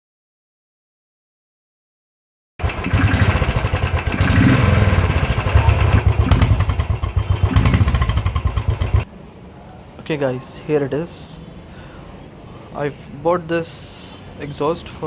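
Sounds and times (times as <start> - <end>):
motorcycle engine revving: 2.6 - 9.1.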